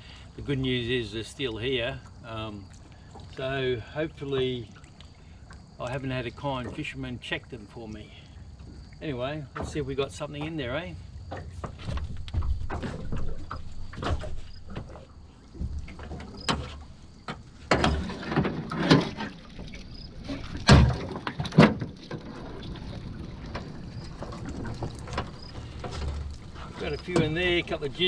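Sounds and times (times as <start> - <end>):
knocks against a boat: 11.3 - 19.4, 20.4 - 22.4.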